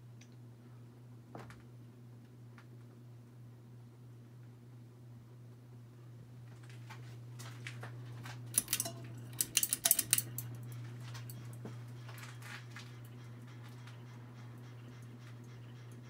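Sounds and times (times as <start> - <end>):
ceiling fan motor hum: 0.0 - 16.0
light metallic clicks and rattles: 8.5 - 12.6.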